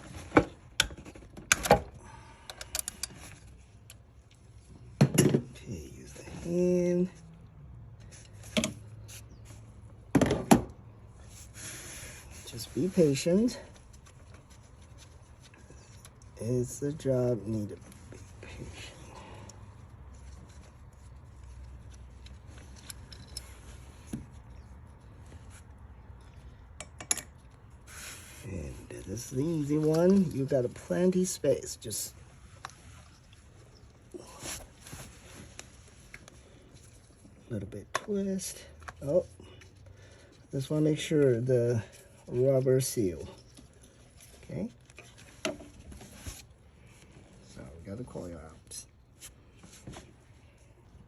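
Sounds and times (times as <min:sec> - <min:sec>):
small clicks and knocks of tools: 0:02.4 - 0:04.4
hand tools clicking on metal: 0:02.5 - 0:03.2.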